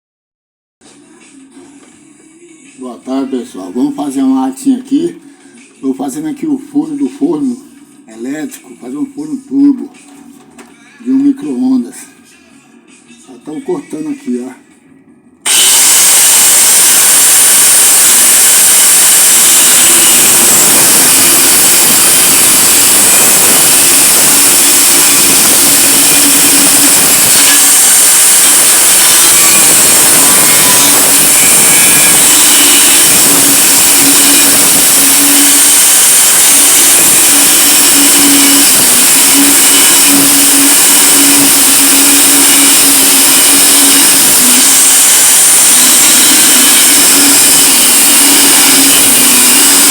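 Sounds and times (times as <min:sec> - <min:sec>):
power tool cutting sheet metal: 0:15.5 - 0:49.9.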